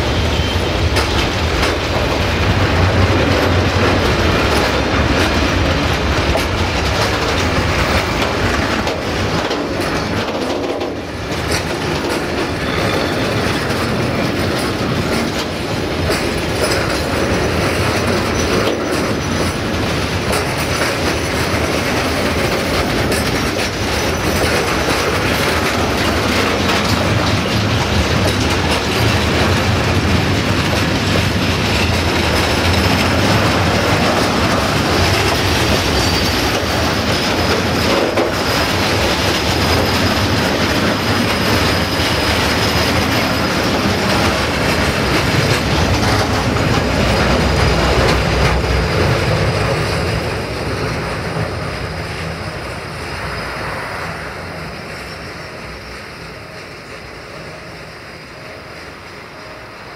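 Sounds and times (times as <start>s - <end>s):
high wheel squeal: 0.0s - 1.2s, 12.2s - 15.0s, 31.7s - 44.3s, 51.2s - 59.8s
freight wagons rumbling on rails: 0.0s - 59.9s.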